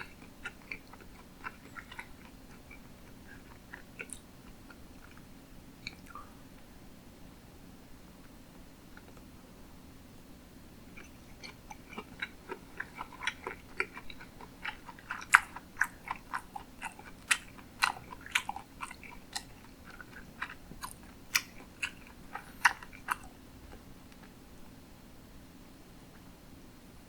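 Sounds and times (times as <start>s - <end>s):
wet chewing mouth clicks: 0.0s - 5.2s, 5.8s - 6.3s, 11.0s - 24.3s.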